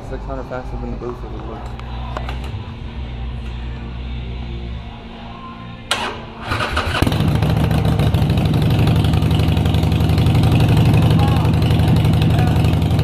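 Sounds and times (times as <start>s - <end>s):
motorcycle engine starting and idling: 5.9s - 13.0s.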